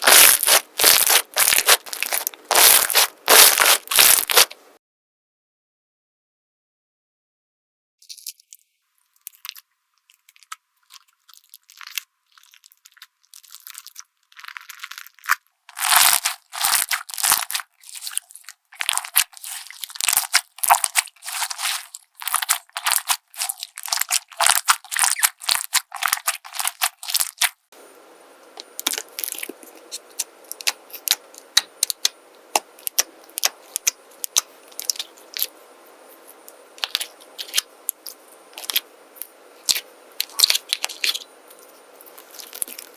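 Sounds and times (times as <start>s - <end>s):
slime crackling and popping: 0.0s - 4.6s, 10.1s - 27.6s, 28.6s - 35.5s, 36.8s - 38.8s, 39.6s - 42.9s.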